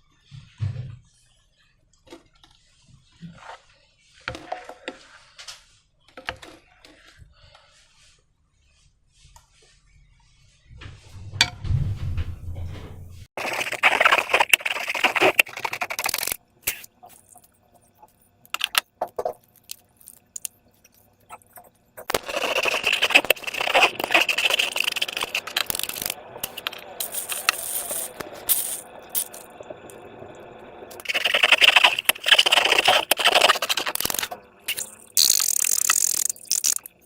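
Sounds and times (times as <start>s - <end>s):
crinkling rustling noise: 19.2s - 29.6s.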